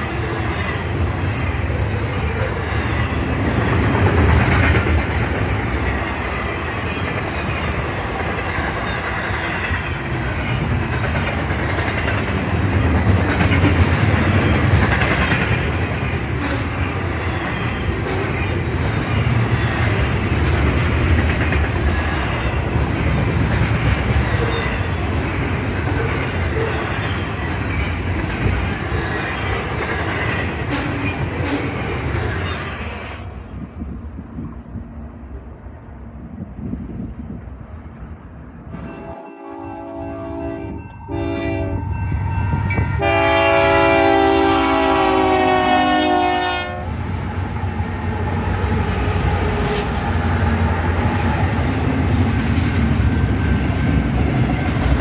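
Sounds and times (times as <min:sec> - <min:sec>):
train wheels rumbling on rail: 0:00.0 - 0:55.0
locomotive air horn blasts: 0:38.8 - 0:42.0, 0:42.8 - 0:46.9.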